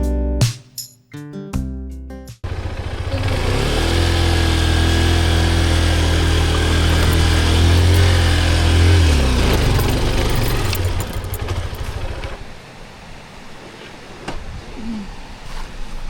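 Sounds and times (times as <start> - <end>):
motorcycle engine running: 2.4 - 12.5.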